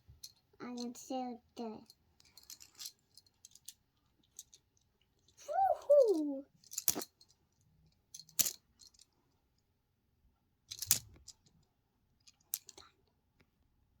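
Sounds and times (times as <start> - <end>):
toy pieces clicking: 5.5 - 7.1, 12.5 - 12.8.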